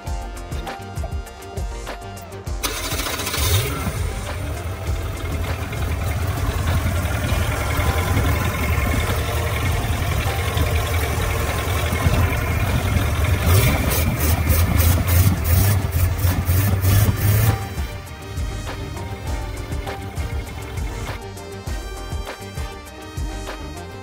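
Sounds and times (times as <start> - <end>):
engine idling: 1.8 - 24.0.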